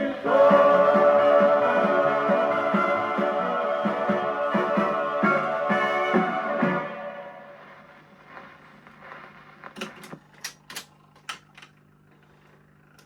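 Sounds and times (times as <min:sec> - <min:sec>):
record music: 0:00.0 - 0:10.4
record surface hiss: 0:00.0 - 0:13.0
steady low hum: 0:00.0 - 0:13.0.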